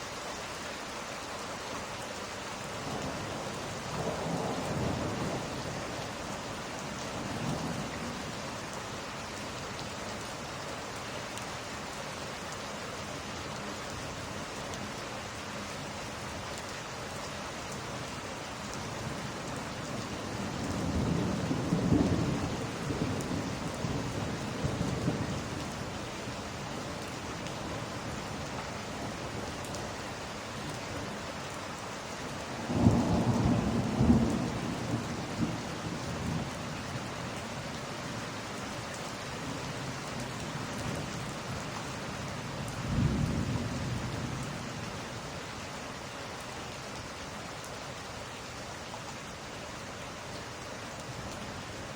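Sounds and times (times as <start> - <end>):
steady rain: 0.0 - 51.9
rolling thunder: 32.6 - 37.0.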